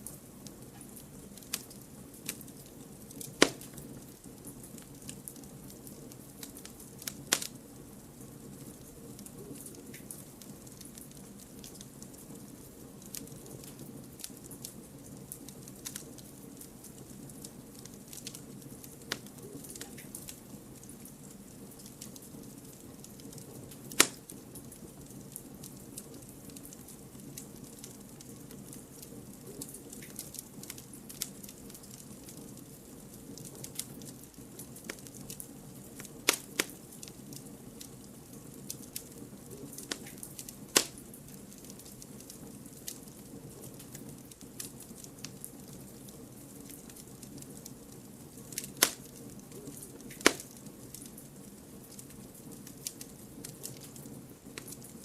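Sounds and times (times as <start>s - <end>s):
wood fire crackling: 0.0s - 55.0s
fire hissing: 0.2s - 5.1s, 28.6s - 55.0s
loud pops of firewood: 3.3s - 3.8s, 23.9s - 24.2s, 40.8s - 41.0s, 48.6s - 49.1s, 50.2s - 50.5s.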